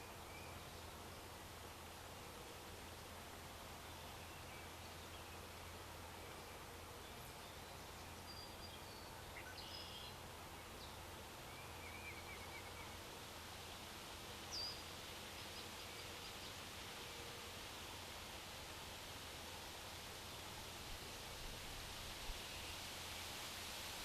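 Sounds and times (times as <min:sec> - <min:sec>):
distant songbirds chirping: 0:00.0 - 0:02.0, 0:02.9 - 0:17.4.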